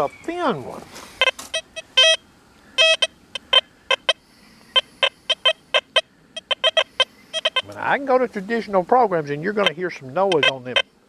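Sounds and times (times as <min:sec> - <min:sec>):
metal detector high beeps: 0:01.2 - 0:02.2, 0:02.8 - 0:07.8, 0:09.6 - 0:10.9.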